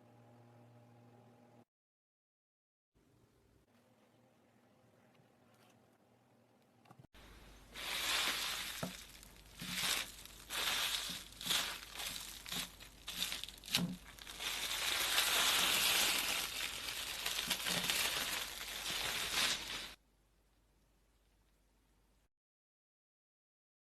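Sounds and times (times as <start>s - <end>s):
slime crinkling and crackling: 7.8s - 20.0s.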